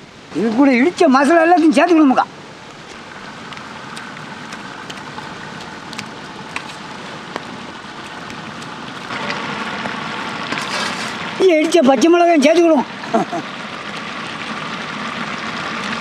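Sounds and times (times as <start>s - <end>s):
chicken sizzling in oil: 12.9s - 16.0s.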